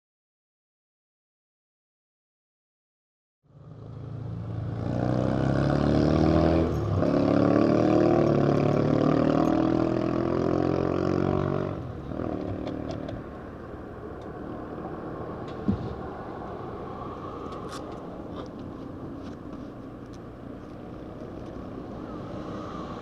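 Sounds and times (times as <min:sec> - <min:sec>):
motorcycle engine revving: 0:03.5 - 0:13.3.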